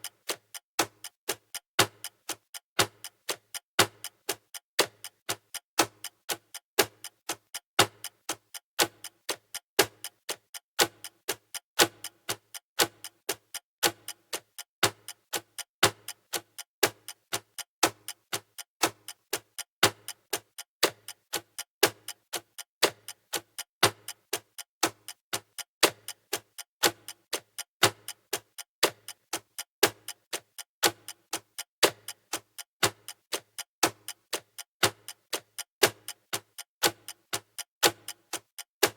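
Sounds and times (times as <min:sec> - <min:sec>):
countdown timer ticking: 0:13.9 - 0:38.9.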